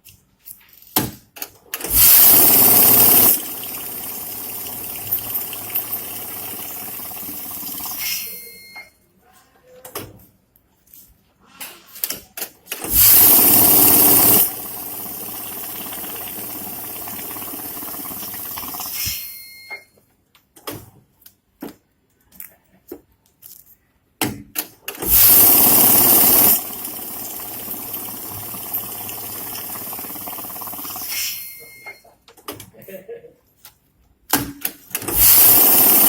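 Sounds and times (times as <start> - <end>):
counting machine motor running: 1.9 - 8.3, 12.8 - 19.0, 25.0 - 31.2, 35.1 - 36.0
short beep: 8.0 - 9.0, 31.2 - 32.1.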